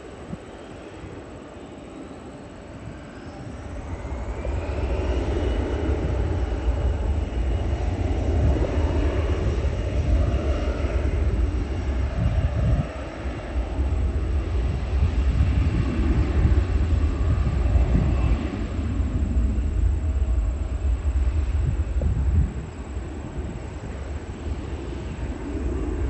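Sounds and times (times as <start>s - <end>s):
jet engine roar: 0.0s - 26.0s
jet engine whine: 0.0s - 26.0s.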